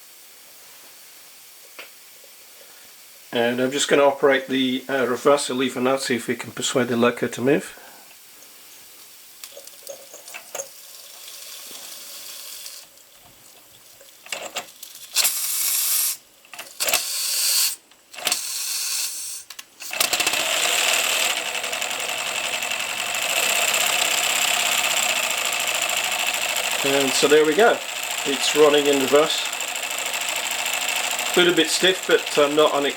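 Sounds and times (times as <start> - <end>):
steam hissing: 10.7 - 12.9, 15.2 - 21.5, 23.4 - 32.9.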